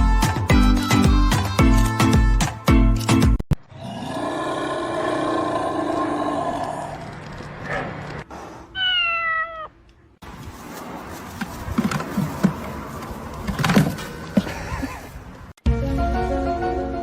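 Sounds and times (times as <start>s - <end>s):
cat meowing: 8.8s - 9.8s
rustling: 10.2s - 15.3s.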